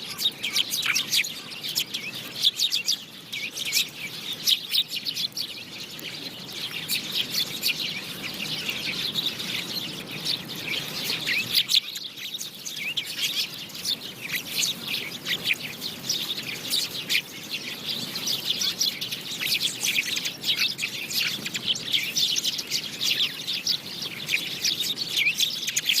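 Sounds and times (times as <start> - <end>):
sparrows chirping: 0.0 - 26.0.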